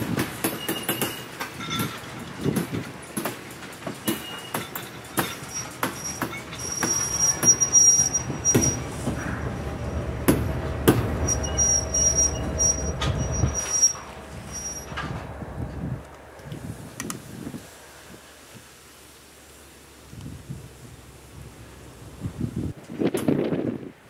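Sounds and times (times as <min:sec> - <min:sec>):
wheels clicking over rail joints: 0:00.0 - 0:17.4
heavy train rumble: 0:00.0 - 0:24.0
high wheel squeal: 0:04.0 - 0:15.4.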